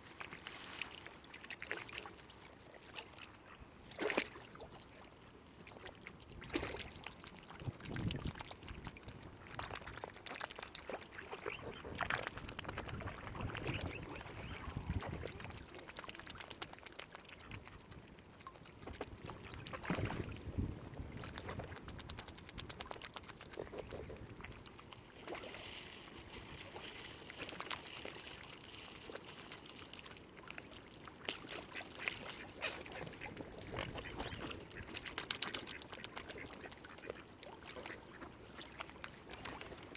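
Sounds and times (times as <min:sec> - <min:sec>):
waterfowl calls: 0:11.2 - 0:12.2, 0:13.2 - 0:15.3.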